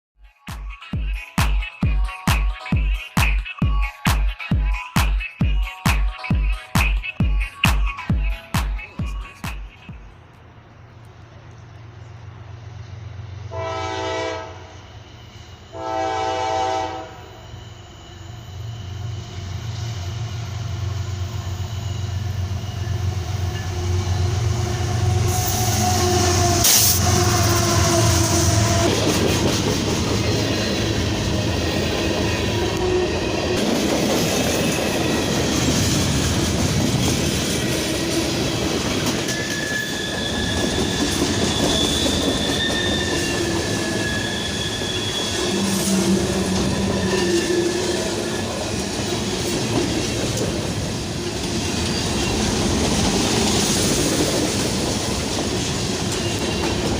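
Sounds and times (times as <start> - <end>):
locomotive engine hum: 8.0 - 14.3
train horn blasts: 13.5 - 17.8, 23.5 - 29.2
wheels clattering on rails: 46.3 - 56.9.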